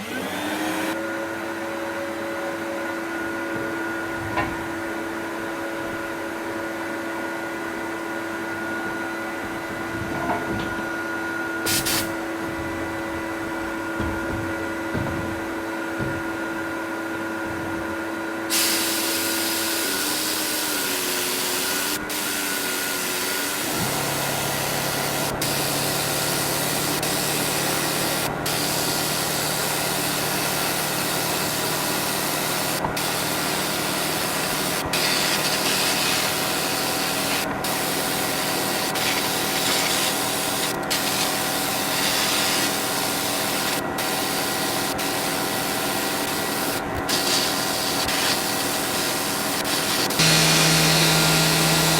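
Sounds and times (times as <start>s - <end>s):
steady machine hum: 7.6s - 18.6s, 48.6s - 51.9s
compressed air tool hissing: 11.7s - 12.2s, 18.5s - 22.4s, 31.1s - 51.9s.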